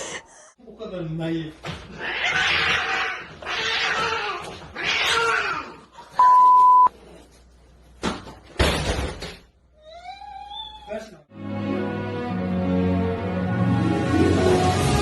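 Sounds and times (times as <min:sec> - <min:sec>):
high beep: 0:06.2 - 0:06.9.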